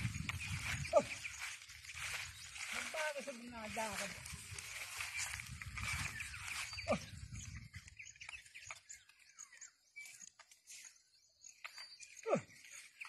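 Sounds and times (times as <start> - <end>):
wind rumble on microphone: 0.0 - 8.8
small birds chirping: 0.0 - 13.0.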